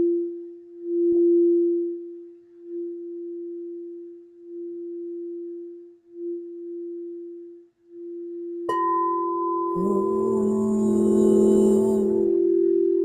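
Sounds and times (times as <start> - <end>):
singing bowl ringing: 8.0 - 13.0.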